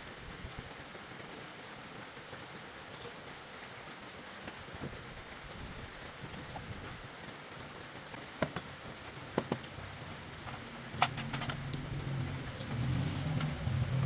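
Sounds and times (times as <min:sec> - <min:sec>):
steady background noise: 0:00.0 - 0:14.0
low hum: 0:09.8 - 0:14.0
sharp clicks and knocks: 0:10.4 - 0:12.8.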